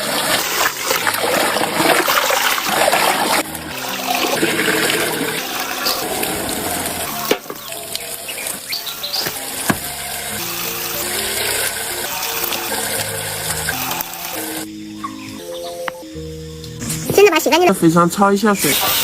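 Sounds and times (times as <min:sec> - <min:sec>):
tap water running and splashing: 0:00.0 - 0:14.7, 0:18.6 - 0:19.0
background music: 0:00.0 - 0:19.0.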